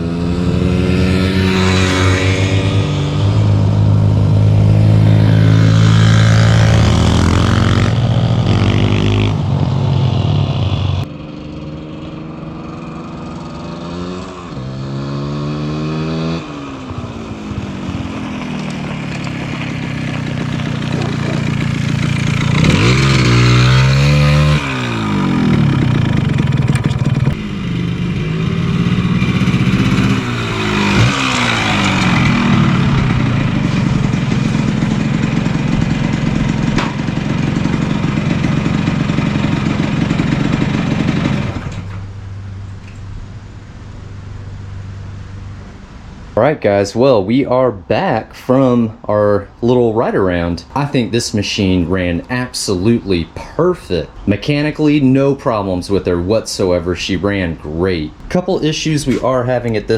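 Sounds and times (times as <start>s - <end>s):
two-stroke motorcycle engine revving: 0.0s - 43.2s.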